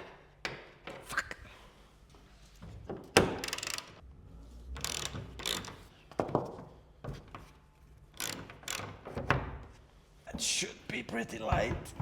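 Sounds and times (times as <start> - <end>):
ratchet wrench clicking: 3.3 - 4.0, 4.8 - 5.8, 8.2 - 8.9.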